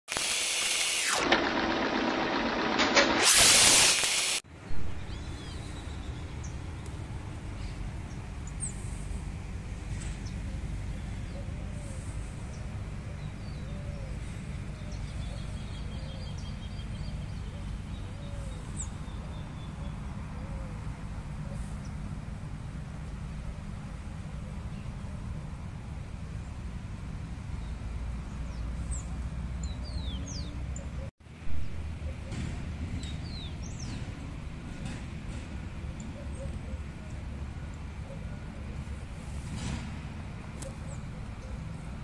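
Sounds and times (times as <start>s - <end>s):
loud mechanical intro sound: 0.1s - 4.4s.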